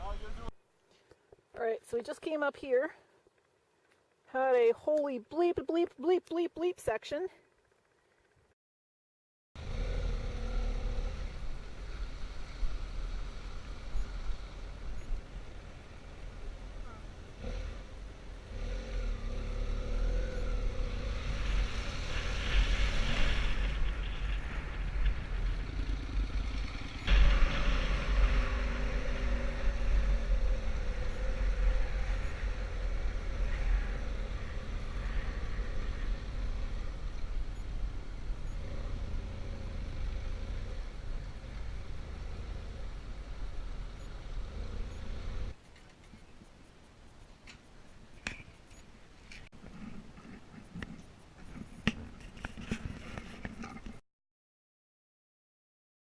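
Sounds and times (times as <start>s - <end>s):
wind rumble on microphone: 20.4s - 38.5s.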